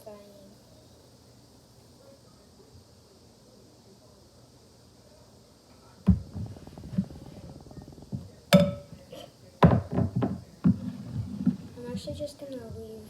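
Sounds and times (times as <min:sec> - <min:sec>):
sharp clinks against bowl: 0:08.6 - 0:08.9.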